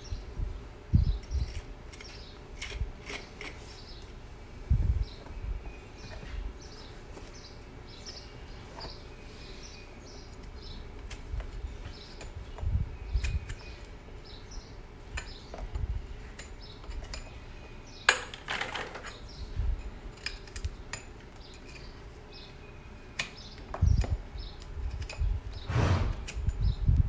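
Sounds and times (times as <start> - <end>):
rushing noise: 25.7 - 26.3.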